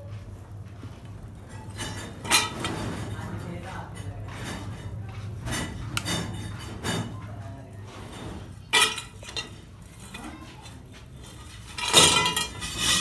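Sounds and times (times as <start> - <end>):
low machine hum: 0.0 - 13.0
metal parts clinking: 8.7 - 10.3, 11.6 - 13.0.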